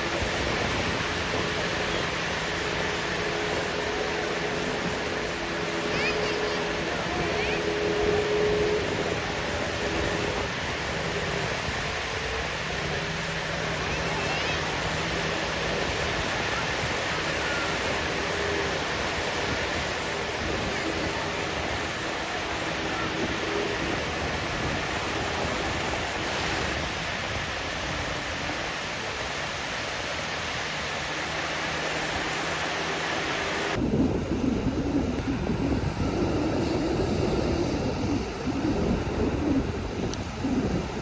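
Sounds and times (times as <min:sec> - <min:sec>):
sea surf on a beach: 0:00.0 - 0:41.0.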